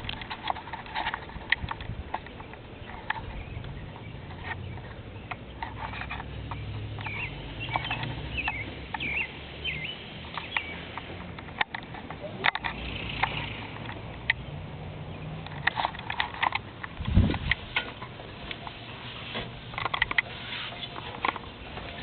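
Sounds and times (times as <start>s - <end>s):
sharp clicks and scratches: 0.0s - 9.3s, 10.2s - 14.4s, 15.4s - 22.0s
nestling birds cheeping: 2.1s - 11.2s, 12.6s - 15.5s.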